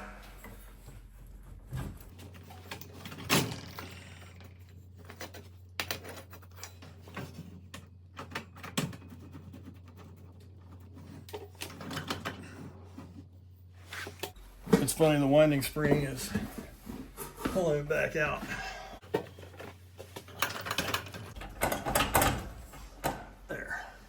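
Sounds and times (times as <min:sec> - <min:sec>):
metal clinks and knocks: 0:00.2 - 0:09.5.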